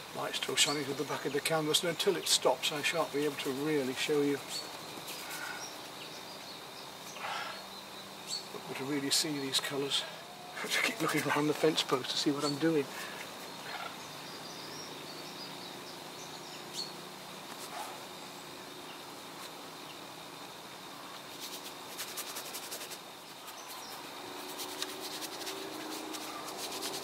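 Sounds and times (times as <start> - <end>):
wild birds calling: 0.0 - 19.2, 22.4 - 27.0
rapid chattering clicks: 24.4 - 27.0.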